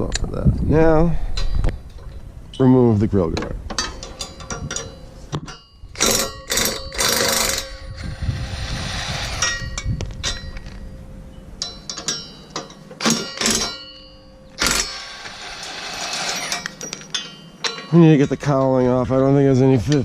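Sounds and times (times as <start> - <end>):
metallic clatters: 3.7 - 7.9, 11.6 - 19.0
hand ratchet clicking: 6.0 - 7.8.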